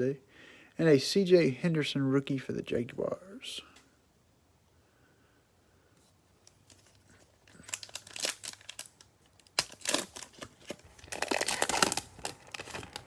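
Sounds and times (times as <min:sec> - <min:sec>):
plastic wrapper tearing and crinkling: 0:06.5 - 0:13.0.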